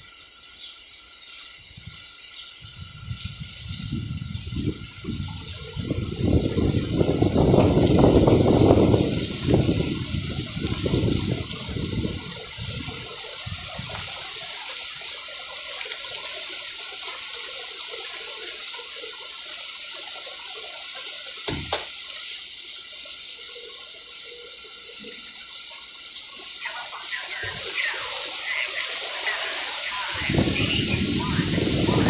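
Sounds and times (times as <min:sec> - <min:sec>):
heavy rain pouring: 0:00.9 - 0:32.0
sharp knock: 0:21.5 - 0:21.9.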